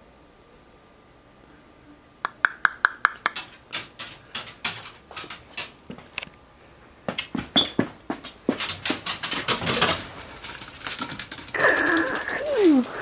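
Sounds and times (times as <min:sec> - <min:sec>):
dog clicks and scuffs: 0:02.8 - 0:06.3, 0:07.1 - 0:13.0.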